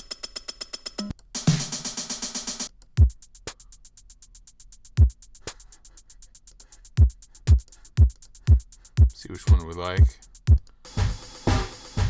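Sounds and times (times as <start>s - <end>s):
hi-hat ticks: 0.0s - 12.0s
dense drum machine pattern: 1.0s - 12.0s
deep kick drum: 3.0s - 3.2s, 7.0s - 12.0s
snare hit: 10.9s - 12.0s.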